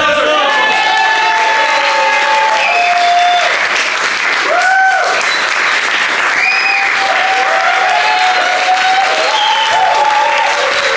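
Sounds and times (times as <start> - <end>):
audience applauding: 0.0 - 10.9
people whooping: 0.3 - 3.8, 4.4 - 10.9.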